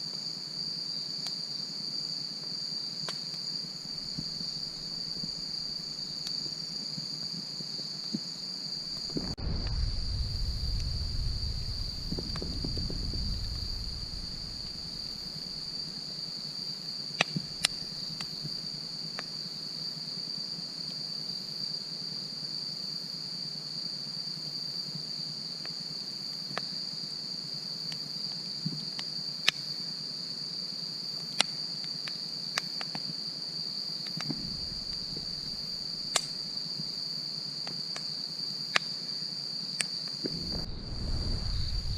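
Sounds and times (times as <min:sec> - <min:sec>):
crickets trilling: 0:00.0 - 0:41.9
campfire pops and cracks: 0:09.0 - 0:15.8, 0:17.2 - 0:18.4, 0:34.0 - 0:36.5, 0:40.2 - 0:41.9
low rumble: 0:09.0 - 0:15.8, 0:34.3 - 0:35.7, 0:40.3 - 0:41.9.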